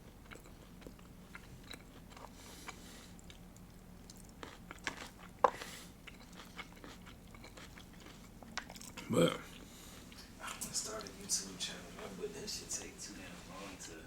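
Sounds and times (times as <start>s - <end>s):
person chewing food: 0.0s - 10.3s.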